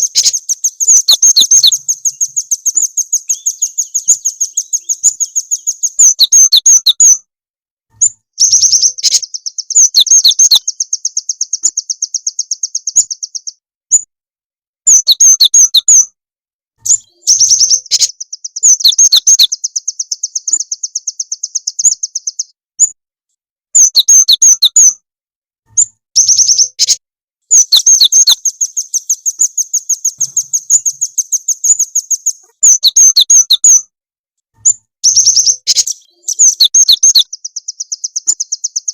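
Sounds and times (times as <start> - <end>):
rapid high bird trill: 0.0 - 7.2, 8.0 - 13.6, 16.9 - 22.5, 25.8 - 33.9, 34.6 - 38.9
high bird chirps: 0.0 - 7.3, 7.9 - 14.1, 14.9 - 16.1, 16.8 - 23.0, 23.8 - 25.0, 25.7 - 33.9, 34.6 - 38.9.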